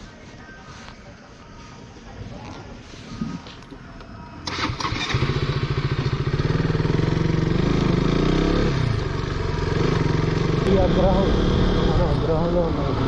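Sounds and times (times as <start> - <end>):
motorcycle engine revving: 4.4 - 13.0.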